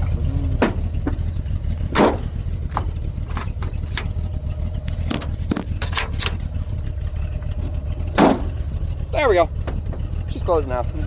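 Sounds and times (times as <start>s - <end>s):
low steady rumble: 0.0s - 11.0s
metal knocks and clacks: 0.6s - 4.2s, 4.8s - 6.6s.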